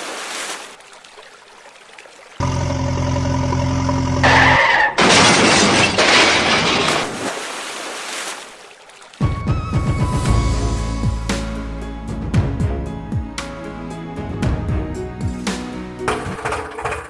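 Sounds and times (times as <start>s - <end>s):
cartoon engine hum: 2.4s - 4.6s
music: 9.2s - 16.6s.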